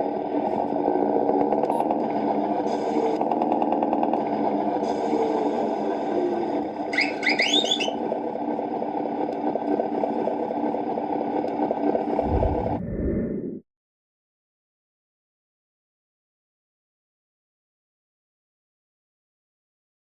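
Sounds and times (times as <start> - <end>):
engine sound from small speaker: 0.0 - 12.8
short deep rumble: 12.1 - 13.6
rising high whistling tones: 12.2 - 13.6.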